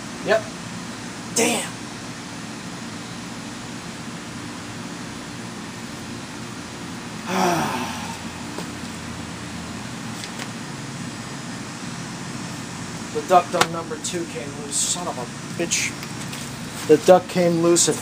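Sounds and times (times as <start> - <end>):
low hum and hiss: 0.0 - 18.0
man groaning: 1.4 - 1.8, 7.2 - 8.5.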